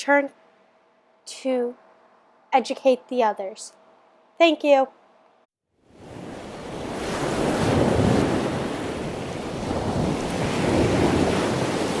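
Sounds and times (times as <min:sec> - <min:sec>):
ocean waves rushing: 0:05.9 - 0:12.0.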